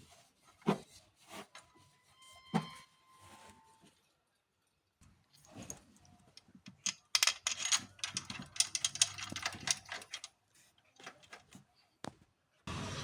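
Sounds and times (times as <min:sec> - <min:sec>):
metallic clicking of hand tools: 0:06.7 - 0:10.3.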